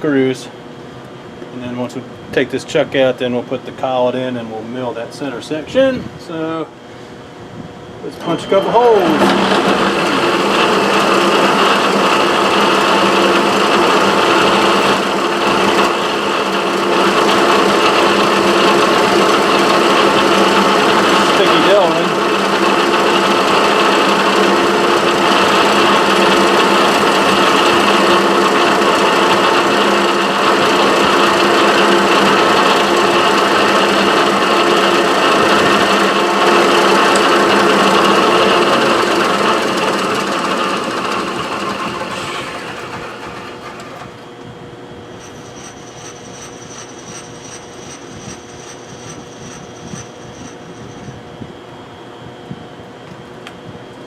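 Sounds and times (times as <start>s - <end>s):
steady hum: 0.0s - 54.0s
milling machine spindle running: 8.0s - 44.4s, 45.1s - 51.2s.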